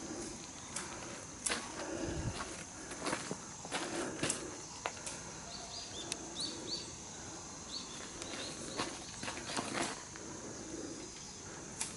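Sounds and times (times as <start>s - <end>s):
footsteps on stone paving: 1.5s - 5.0s.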